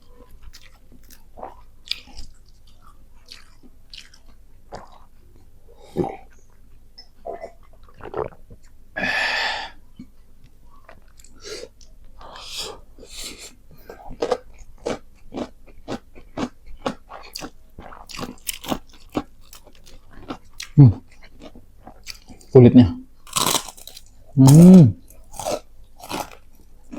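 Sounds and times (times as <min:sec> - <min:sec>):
person chewing and crunching food: 0:00.0 - 0:08.8, 0:12.5 - 0:22.5, 0:23.2 - 0:26.9.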